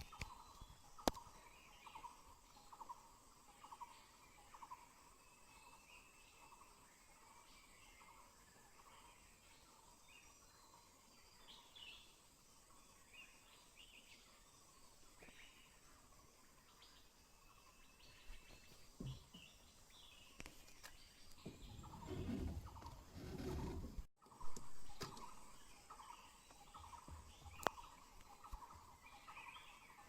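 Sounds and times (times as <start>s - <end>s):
faint bird chirps: 0.0s - 30.0s
forest background: 0.0s - 30.0s
low rustling and knocking: 21.4s - 24.1s.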